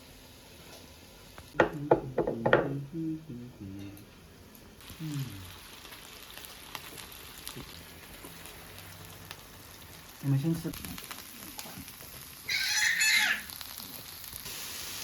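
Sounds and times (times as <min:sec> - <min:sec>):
food sizzling on a grill: 0:04.8 - 0:15.0.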